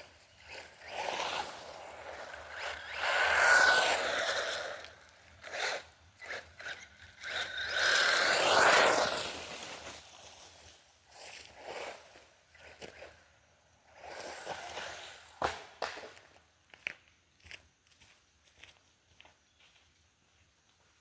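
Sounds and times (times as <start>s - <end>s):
electric motor whining: 0.4s - 9.2s.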